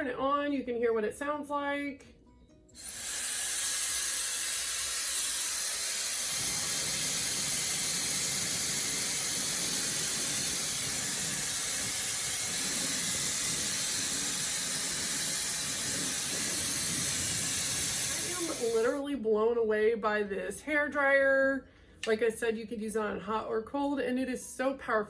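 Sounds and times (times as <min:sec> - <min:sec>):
hair dryer running: 0:02.8 - 0:19.0.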